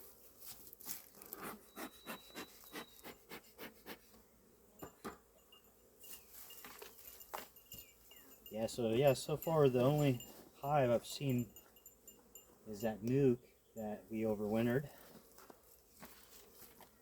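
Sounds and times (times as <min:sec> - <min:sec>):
gloves rubbing and rustling: 0:00.0 - 0:04.3, 0:14.9 - 0:17.0.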